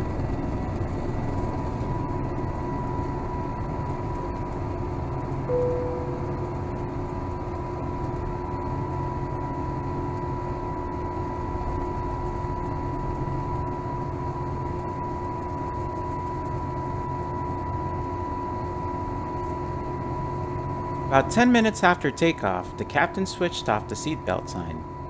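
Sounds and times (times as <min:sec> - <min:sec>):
jet engine and airflow roar: 0:00.0 - 0:08.1, 0:10.6 - 0:25.0
high steady whine: 0:05.5 - 0:06.8.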